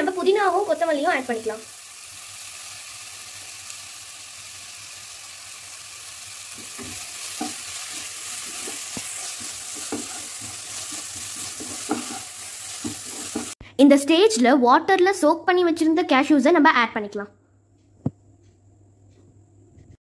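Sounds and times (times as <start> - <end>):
onions sizzling in hot oil: 0.0 - 13.6
wooden spatula scraping pot: 6.6 - 13.6.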